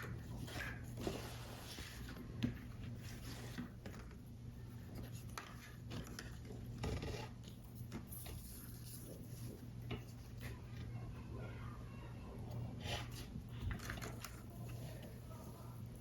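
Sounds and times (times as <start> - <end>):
paper and card rustling: 12.9 - 16.0.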